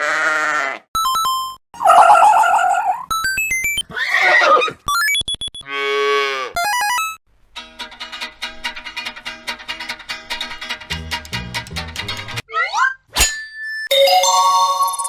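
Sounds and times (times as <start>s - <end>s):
electronic beeping tones: 1.0s - 3.8s, 4.9s - 5.6s, 6.6s - 7.2s
music with plucked notes: 6.6s - 12.4s.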